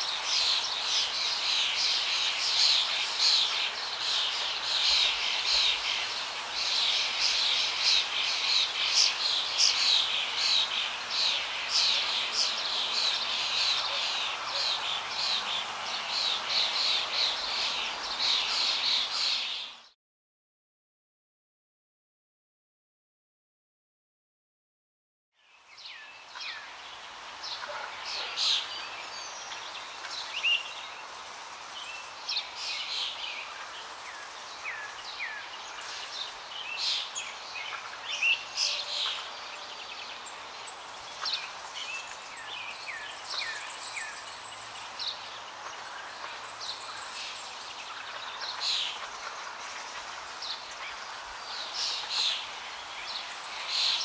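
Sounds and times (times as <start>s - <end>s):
outdoor ambience hiss: 0.0s - 20.0s, 25.4s - 54.0s
small birds chirping: 0.0s - 20.0s, 25.4s - 54.0s.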